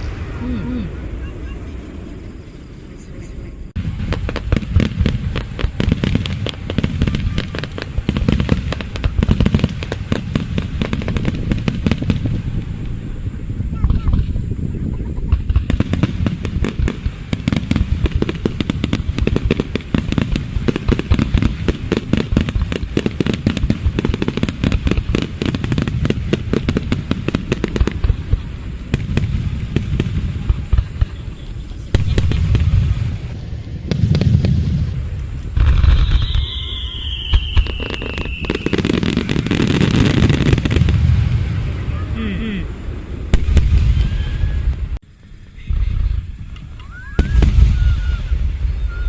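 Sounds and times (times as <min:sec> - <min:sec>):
deep fireworks booms: 0:00.0 - 0:49.0
fireworks crackling: 0:00.0 - 0:49.0
descending firework whistle: 0:30.1 - 0:49.0.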